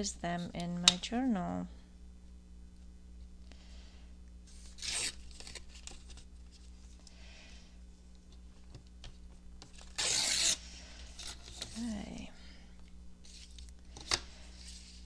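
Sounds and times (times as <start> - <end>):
paper tearing: 4.5 - 6.1, 9.8 - 10.6.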